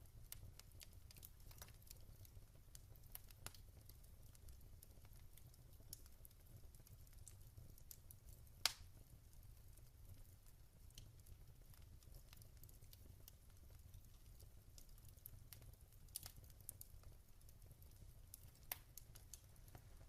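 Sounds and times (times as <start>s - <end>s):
wood fire crackling: 0.0s - 20.0s
sharp fire pops: 8.6s - 8.8s.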